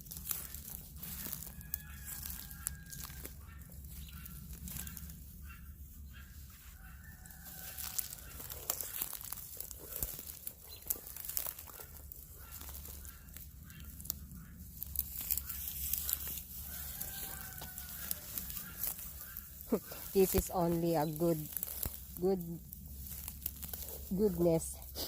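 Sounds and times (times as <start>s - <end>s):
crunching and crackling: 0.0s - 25.0s
faint drawn-out calls: 1.2s - 9.3s, 10.7s - 23.2s
chickens clucking: 1.2s - 25.0s.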